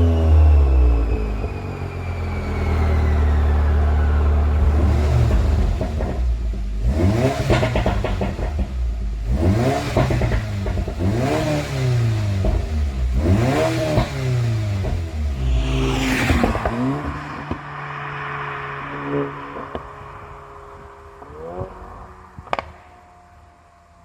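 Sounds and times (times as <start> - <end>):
turbo engine revving: 2.4 - 23.0
exhaust crackles and pops: 19.5 - 23.3.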